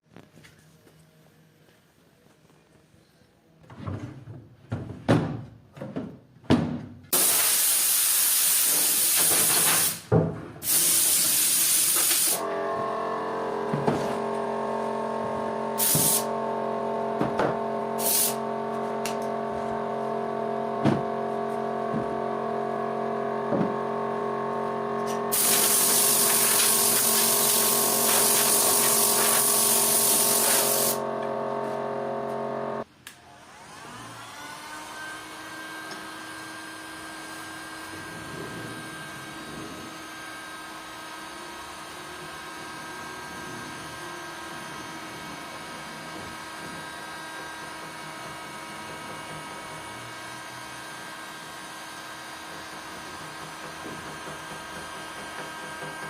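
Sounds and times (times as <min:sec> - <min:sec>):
spraying hiss: 0:07.2 - 0:12.4, 0:25.3 - 0:31.0
small motor running: 0:10.8 - 0:56.0.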